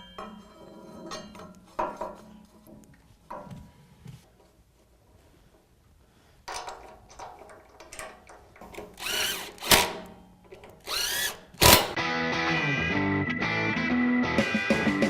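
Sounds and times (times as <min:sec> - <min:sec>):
power drill whining: 0:08.8 - 0:10.2, 0:10.8 - 0:12.0
music: 0:12.0 - 0:15.0.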